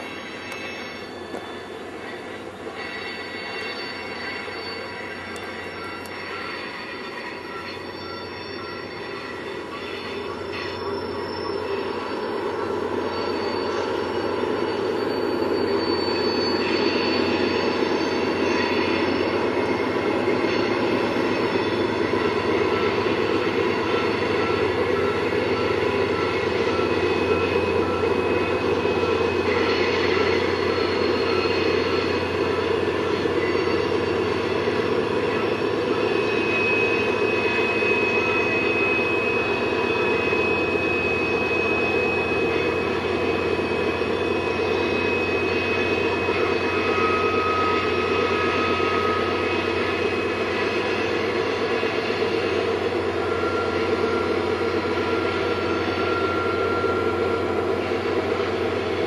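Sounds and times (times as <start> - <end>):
freight train rumbling: 0.0 - 59.0
high wheel squeals: 0.0 - 59.0.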